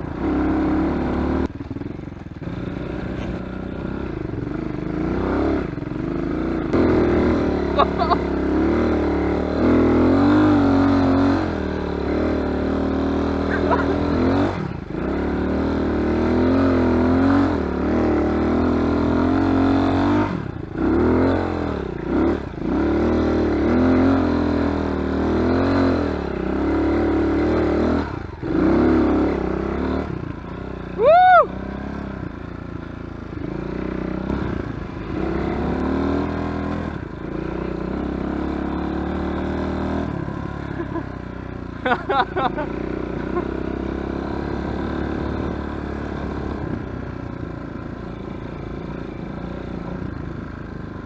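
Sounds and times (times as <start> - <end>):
dirt bike engine revving: 0.0 - 50.2
rising and falling whoop: 31.0 - 31.6.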